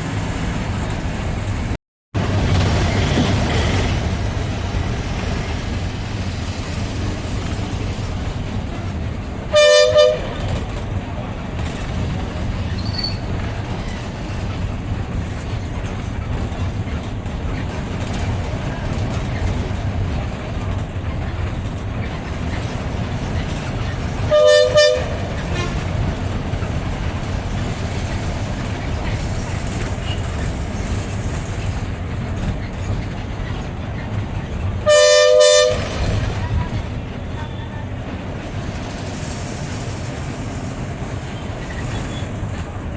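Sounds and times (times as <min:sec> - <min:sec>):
bus engine and road rumble: 0:00.0 - 0:42.9
two-tone vehicle horn: 0:09.5 - 0:10.6, 0:24.3 - 0:25.9, 0:34.8 - 0:36.8.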